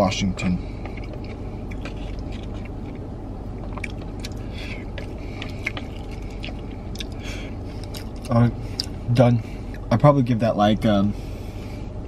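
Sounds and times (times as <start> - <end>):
steady low hum: 0.0 - 12.0
person chewing: 0.4 - 9.9.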